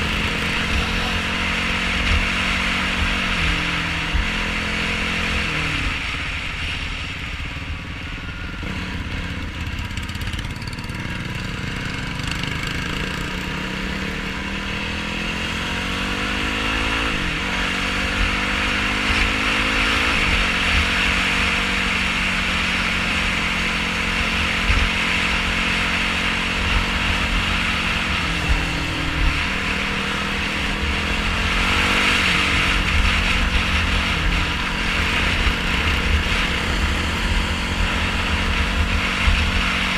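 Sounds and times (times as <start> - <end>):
quad engine revving off-road: 0.0 - 6.8, 8.5 - 39.9.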